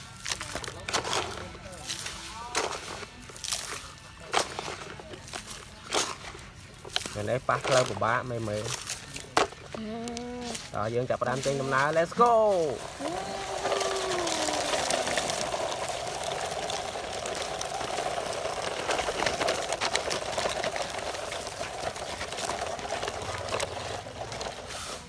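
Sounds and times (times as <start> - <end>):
crackling clicks: 11.4 - 24.8
rc truck motor whirring: 11.5 - 25.0.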